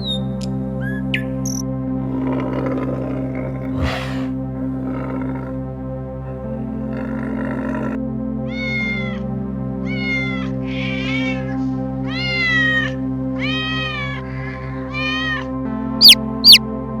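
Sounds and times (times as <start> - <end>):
background music: 0.0 - 17.0
animal calling: 2.1 - 5.6, 6.8 - 9.2, 9.8 - 16.6
short rasping animal calls: 16.0 - 16.6.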